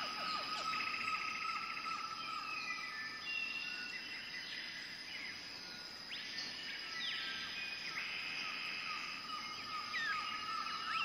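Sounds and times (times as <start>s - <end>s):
bird trill: 0.0s - 2.5s
small birds whistling and chirping: 0.0s - 11.0s.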